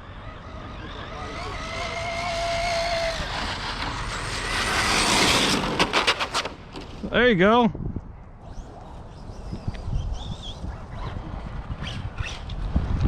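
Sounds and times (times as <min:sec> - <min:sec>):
rc car motor whine: 0:00.0 - 0:06.8.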